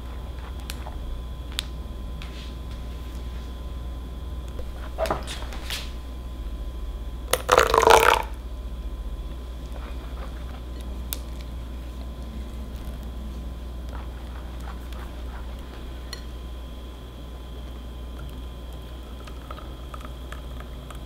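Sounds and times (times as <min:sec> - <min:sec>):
faint steady hum: 0:00.0 - 0:21.0
liquid pouring splash: 0:07.3 - 0:08.3.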